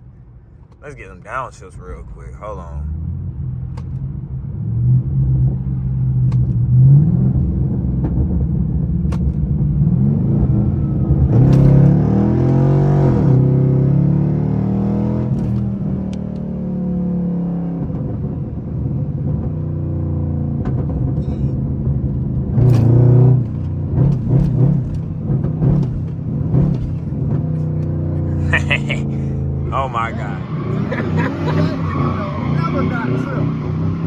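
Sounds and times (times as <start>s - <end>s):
car engine revving: 9.8s - 18.3s, 20.6s - 34.0s.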